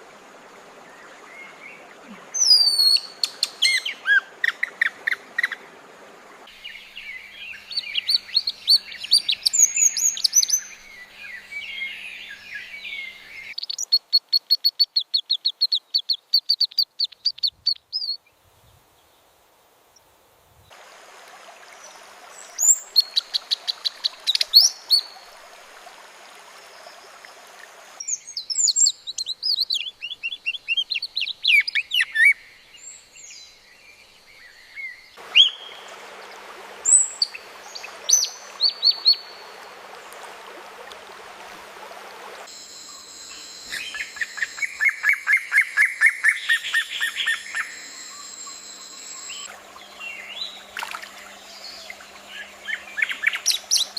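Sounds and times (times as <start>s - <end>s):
steady hiss: 0.0s - 3.9s
birds twittering: 6.5s - 18.3s, 27.9s - 40.1s, 42.8s - 53.9s
repeated bird chirps: 42.8s - 49.6s.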